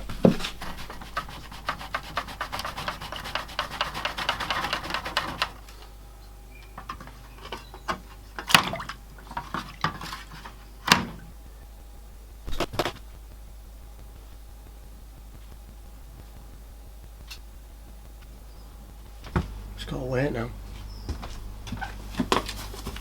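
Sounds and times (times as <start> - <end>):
scratchy rubbing on metal: 0.0 - 5.6, 22.2 - 23.0.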